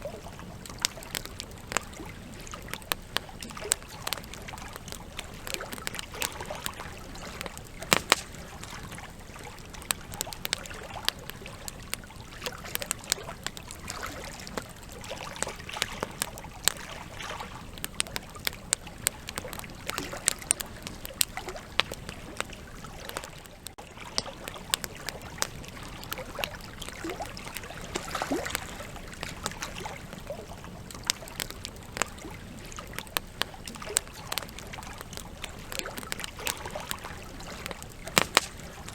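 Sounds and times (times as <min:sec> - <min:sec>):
campfire crackling and popping: 0:00.0 - 0:38.9
hiss of burning: 0:00.5 - 0:10.5, 0:28.9 - 0:38.9.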